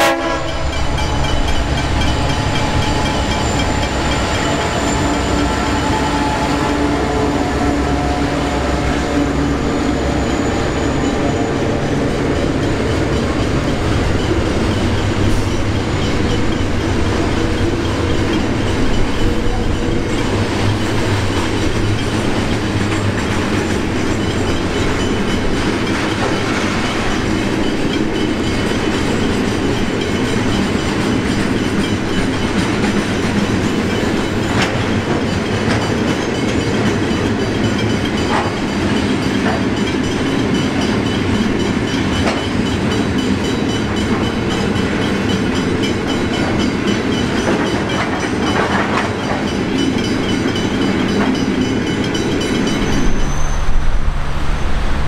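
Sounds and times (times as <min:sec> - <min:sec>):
steel wheels rumbling on rail: 0:00.0 - 0:55.0
wheels clicking over rail joints: 0:11.0 - 0:53.4.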